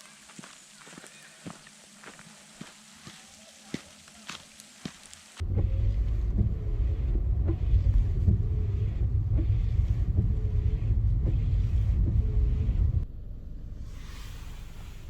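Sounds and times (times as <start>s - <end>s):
car driving rumble: 5.4s - 13.5s.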